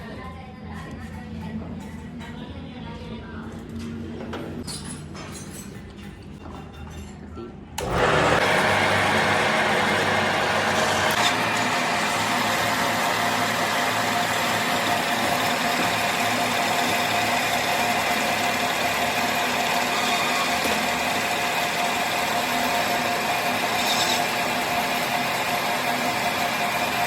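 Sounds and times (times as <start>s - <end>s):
workshop machine motor running: 7.8s - 27.0s.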